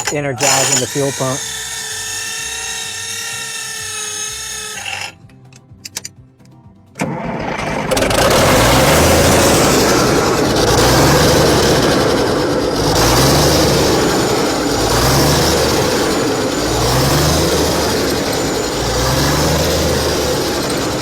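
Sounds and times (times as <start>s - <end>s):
engine running with surging: 7.0s - 21.0s.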